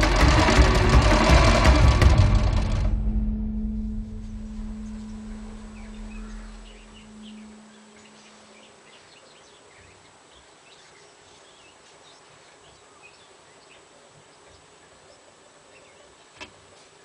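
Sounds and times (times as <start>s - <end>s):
low hum: 0.0s - 8.8s
faint birds chirping: 3.1s - 17.0s.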